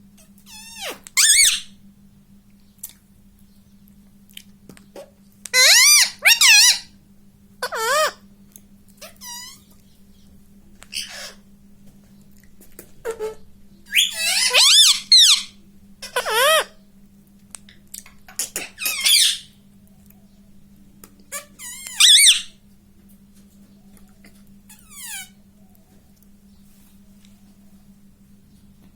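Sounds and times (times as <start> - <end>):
parrot whistling calls: 0.5 - 1.8, 5.5 - 6.9, 9.0 - 9.6, 13.9 - 15.6, 18.6 - 19.6, 21.3 - 22.6.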